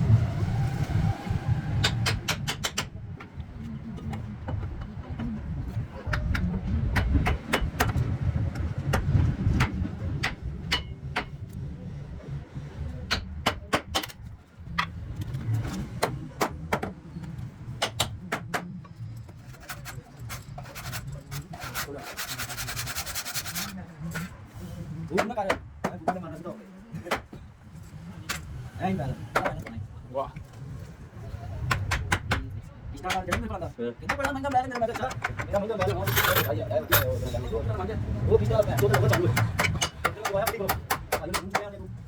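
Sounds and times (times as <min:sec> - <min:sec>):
sharp knocks and taps: 0:38.6 - 0:41.7.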